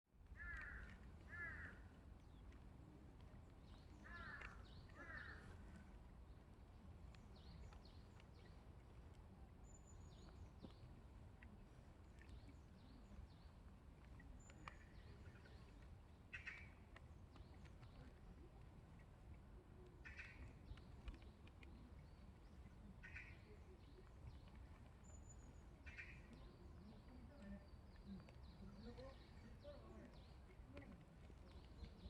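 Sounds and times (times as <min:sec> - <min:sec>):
harsh caw-like calls: 0:00.4 - 0:01.8.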